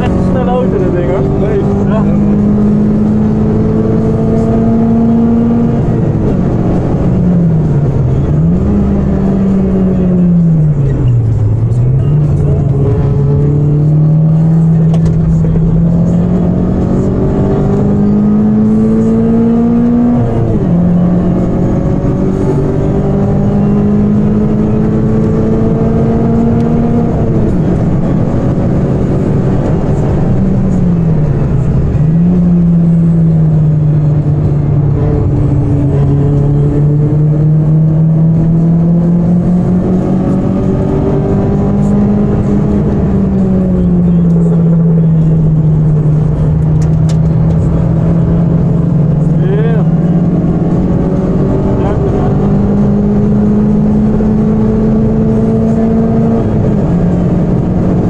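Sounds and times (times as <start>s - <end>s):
car engine revving: 0.0s - 58.0s
road and tyre noise: 0.0s - 58.0s.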